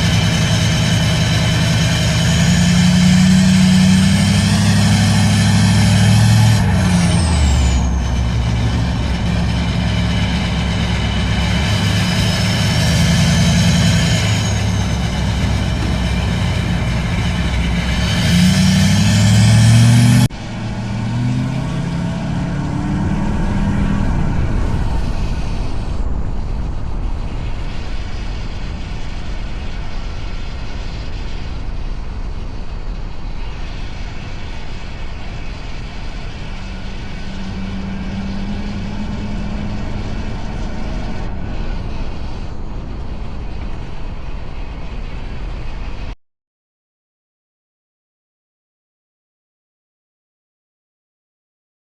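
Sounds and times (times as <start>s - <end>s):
diesel engine revving: 0.0s - 26.8s, 33.6s - 44.1s
exhaust note cruising: 0.0s - 26.8s, 34.9s - 43.6s
wind and road noise: 0.0s - 46.2s.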